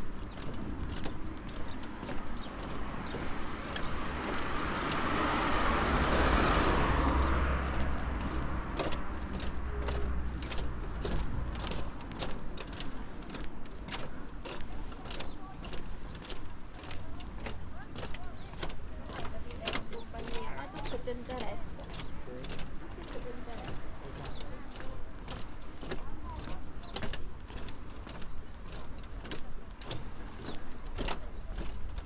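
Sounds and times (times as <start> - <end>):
car passing by: 2.0 - 12.4.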